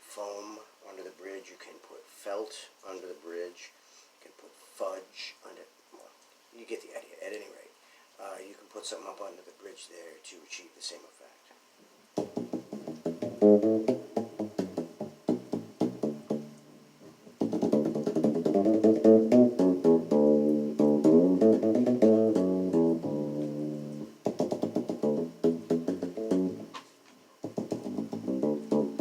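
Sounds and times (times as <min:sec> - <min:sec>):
muted electric bass notes: 0:12.2 - 0:26.8, 0:27.4 - 0:29.0
sustained bass guitar notes: 0:12.2 - 0:26.8, 0:27.4 - 0:29.0.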